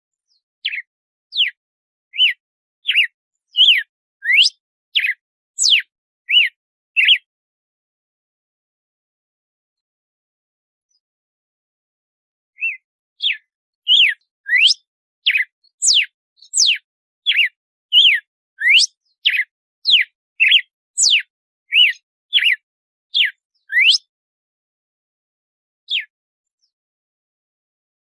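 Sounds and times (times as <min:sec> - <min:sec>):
bird whistling song: 0:00.2 - 0:07.3, 0:12.6 - 0:24.1, 0:25.9 - 0:26.8.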